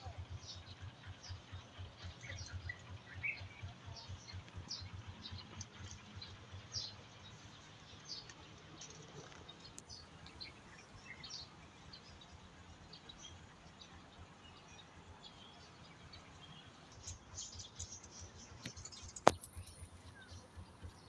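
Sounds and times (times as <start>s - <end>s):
small birds chirping: 0.0s - 21.0s
low fluttering rumble: 15.8s - 21.0s.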